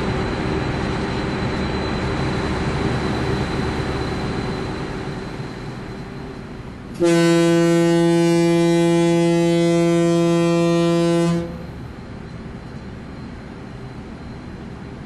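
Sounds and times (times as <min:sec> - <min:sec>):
ship's horn deep blast: 0:06.9 - 0:11.8.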